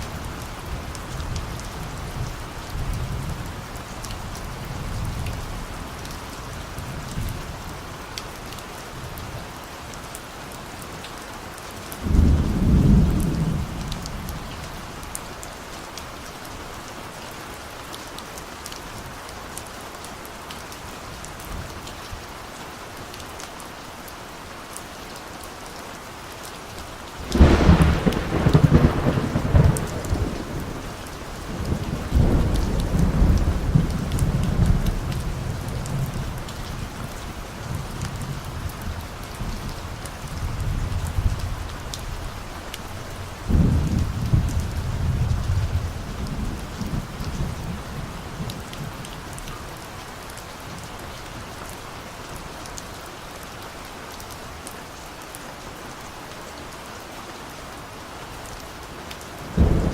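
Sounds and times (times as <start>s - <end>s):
rain drops pattering: 0.0s - 59.9s
distant thunder rumbling: 12.0s - 14.5s, 27.2s - 36.2s, 59.5s - 59.9s.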